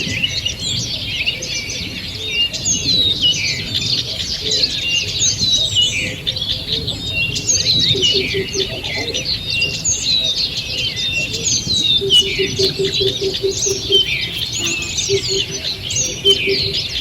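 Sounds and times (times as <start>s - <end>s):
songbirds singing and calling: 0.0s - 17.0s.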